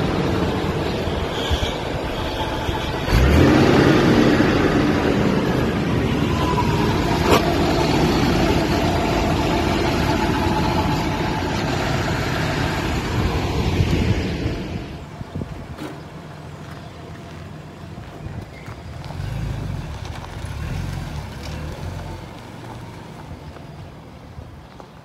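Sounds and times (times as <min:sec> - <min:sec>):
engine idling: 0:00.0 - 0:18.2.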